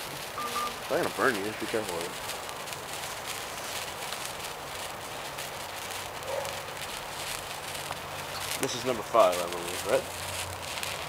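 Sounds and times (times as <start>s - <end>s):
sparkler crackling hiss: 0.0s - 11.0s.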